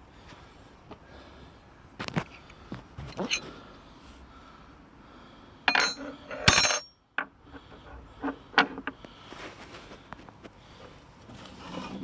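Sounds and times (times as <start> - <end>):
loud ringing metal clank: 5.7 - 6.9
metal tools clanking: 5.7 - 7.0.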